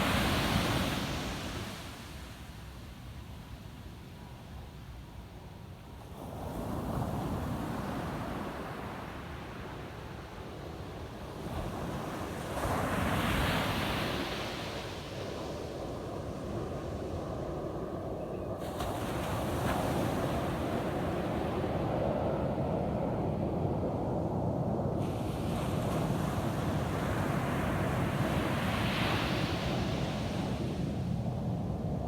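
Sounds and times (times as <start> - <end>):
ocean waves breaking on beach: 0.0 - 2.4, 24.4 - 31.2.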